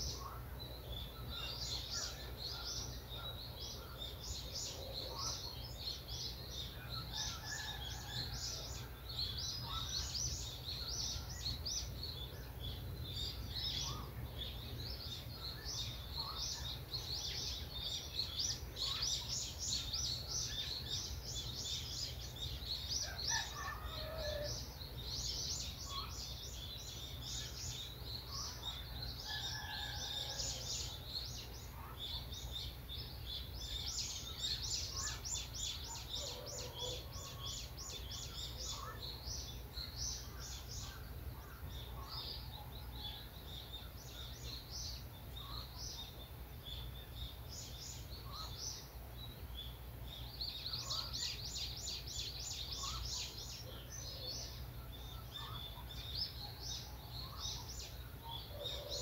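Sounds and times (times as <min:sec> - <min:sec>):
birds chirping chorus: 0:00.0 - 0:59.0.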